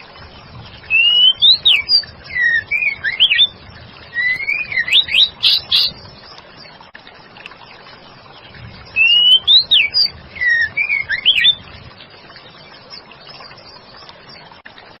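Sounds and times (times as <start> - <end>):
bird singing clear whistles: 0.9 - 6.0, 9.0 - 11.6.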